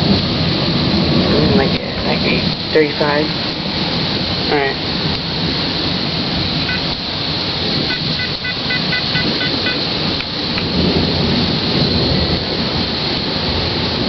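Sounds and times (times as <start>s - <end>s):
heavy rain: 0.0s - 14.0s
low thunder rumbling: 0.0s - 14.0s
short high electronic beeps: 6.7s - 6.9s, 7.9s - 9.8s.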